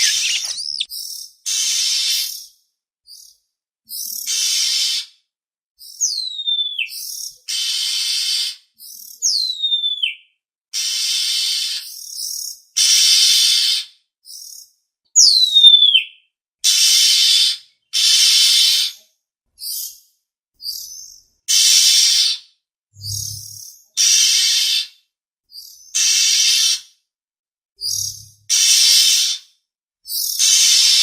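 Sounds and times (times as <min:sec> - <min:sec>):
bird harsh rasping calls: 0:00.0 - 0:00.9
bird whistle gliding down: 0:00.0 - 0:00.9.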